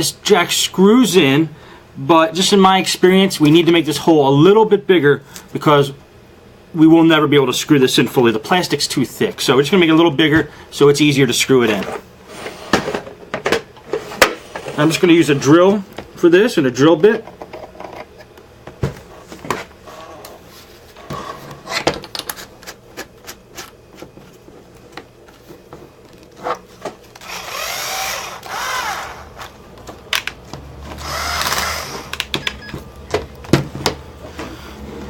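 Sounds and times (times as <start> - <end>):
hand drill motor whine: 27.2 - 29.5, 31.0 - 32.2.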